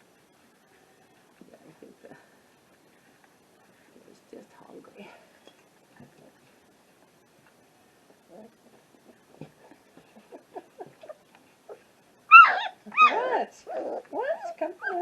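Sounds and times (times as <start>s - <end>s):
puppies squeaking and grunting: 9.4s - 15.0s
puppy whines: 10.1s - 15.0s.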